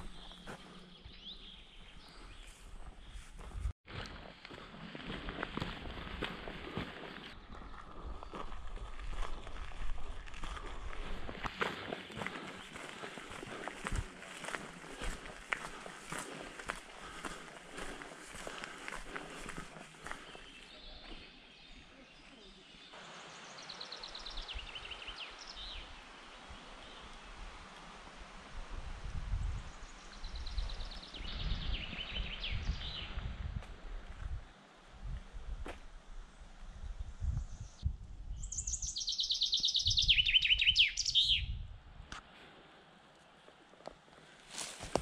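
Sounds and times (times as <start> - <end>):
small songbird singing: 0.0 - 3.2, 29.7 - 33.3, 37.2 - 41.6
songbird singing: 0.0 - 3.6, 5.2 - 27.8, 29.4 - 34.6, 36.8 - 41.7
steady outdoor hiss: 11.1 - 39.8, 41.0 - 45.0.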